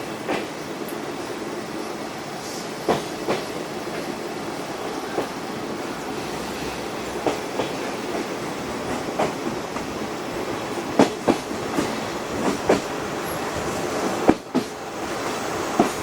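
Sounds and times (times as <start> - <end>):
train coach rumble: 0.0 - 16.0
wheels clicking over rail joints: 6.0 - 16.0.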